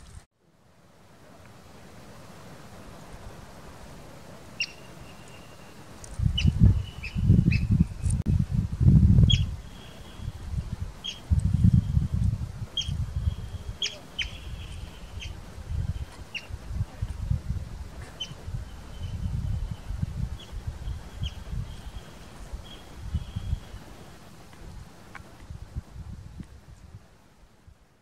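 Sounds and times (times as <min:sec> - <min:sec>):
wind rumbling on microphone: 0:00.0 - 0:28.0
small bird chirping: 0:04.6 - 0:08.2, 0:09.2 - 0:10.4, 0:11.0 - 0:16.6, 0:18.1 - 0:23.8.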